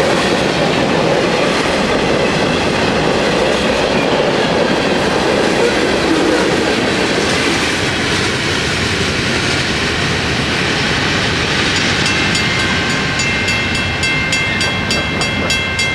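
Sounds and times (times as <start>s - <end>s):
train wheels on rails: 0.0s - 15.9s
fast repeated high ringing: 11.8s - 15.9s.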